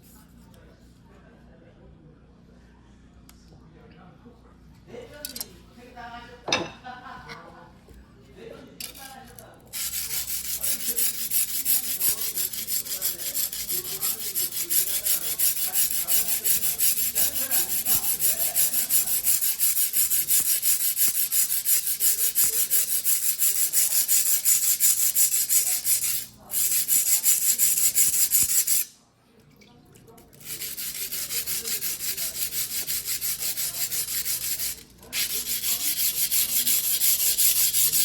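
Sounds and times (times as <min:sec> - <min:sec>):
knife scraping on whetstone: 0:09.8 - 0:28.9, 0:30.4 - 0:38.0.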